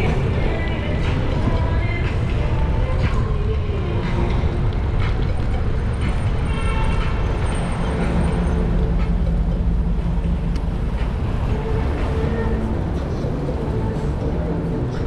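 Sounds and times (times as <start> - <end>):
traffic rumble: 0.0 - 15.0
car horn toot: 6.5 - 7.2.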